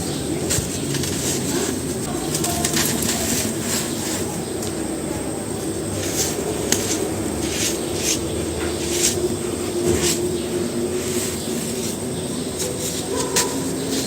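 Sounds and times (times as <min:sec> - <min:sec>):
cement pieces crunching: 0:00.0 - 0:04.9
steady low hum: 0:00.0 - 0:14.0.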